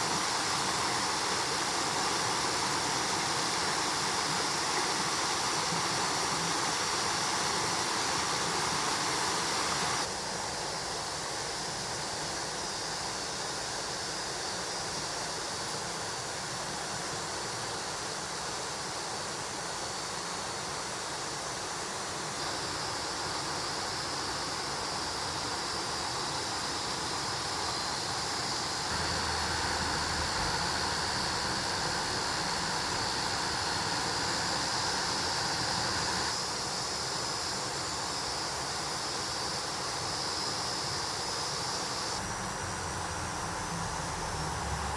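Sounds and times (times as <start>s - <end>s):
water rushing over rocks: 28.9s - 36.4s.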